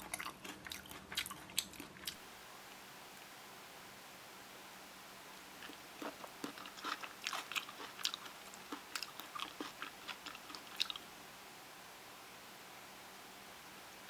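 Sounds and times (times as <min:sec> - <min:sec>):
person chewing food: 0:00.0 - 0:02.3, 0:05.6 - 0:11.1.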